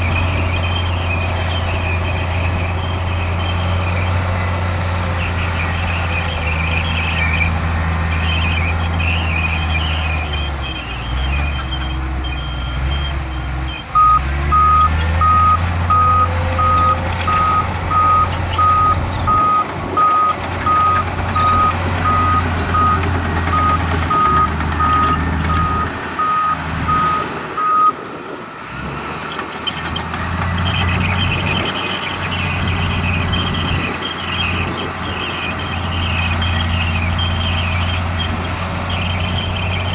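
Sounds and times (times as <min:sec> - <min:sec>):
heavy diesel machinery running: 0:00.0 - 0:39.9
backup alarm beeping: 0:14.0 - 0:28.0.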